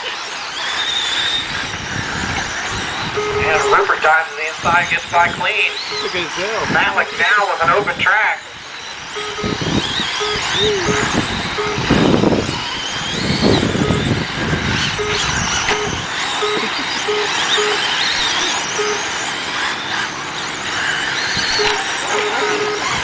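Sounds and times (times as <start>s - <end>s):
rc car motors whining: 0.0s - 23.0s
short beeps: 3.2s - 3.8s, 9.2s - 12.0s, 13.8s - 14.2s, 14.9s - 19.1s, 21.5s - 23.0s.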